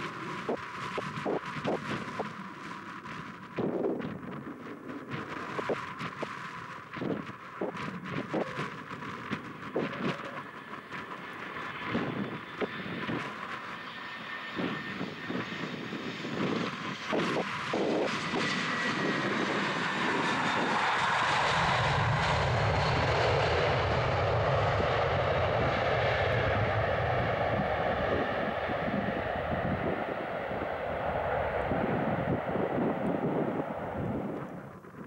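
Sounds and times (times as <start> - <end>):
jet engines roaring: 0.0 - 35.0
deep rumble: 16.4 - 35.0.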